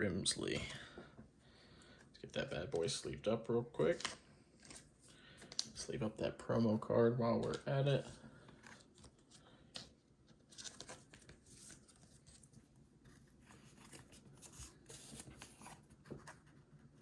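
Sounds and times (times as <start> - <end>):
trading cards rustling in sleeves: 2.0 - 17.0.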